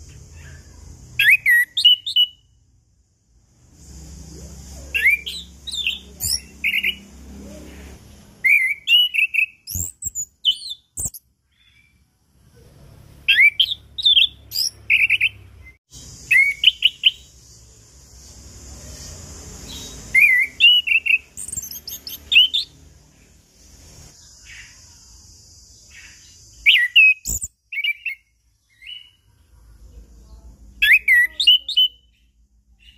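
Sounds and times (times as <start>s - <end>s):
steady high hiss: 2.7s - 8.4s, 15.9s - 26.7s.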